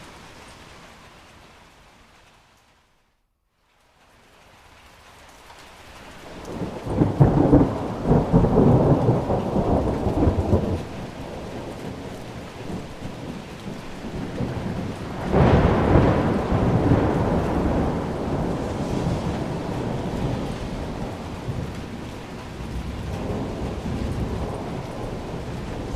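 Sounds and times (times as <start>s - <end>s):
steady rain: 0.0s - 25.9s
rolling thunder: 6.3s - 25.9s.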